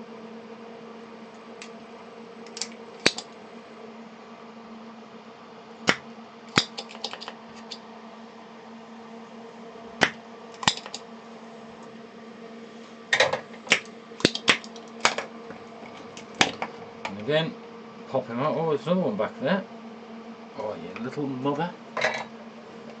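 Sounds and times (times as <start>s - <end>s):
steady low hum: 0.0s - 23.0s
hand tools clicking and tapping: 6.6s - 7.8s, 10.6s - 11.0s.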